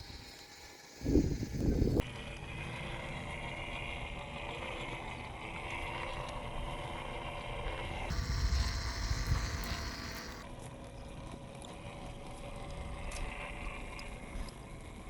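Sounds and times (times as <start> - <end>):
toy truck motor whining: 0.0 - 2.0, 4.9 - 10.5.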